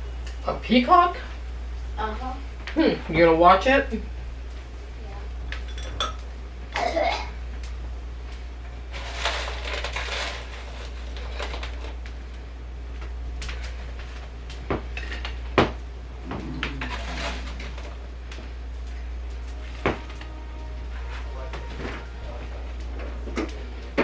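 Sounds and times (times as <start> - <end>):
dishes and cutlery clattering: 5.6 - 6.2.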